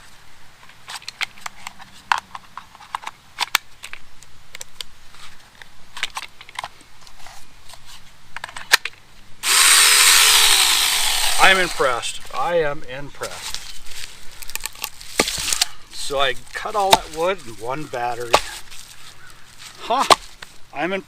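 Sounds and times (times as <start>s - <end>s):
mini chainsaw electric motor: 9.4s - 12.2s.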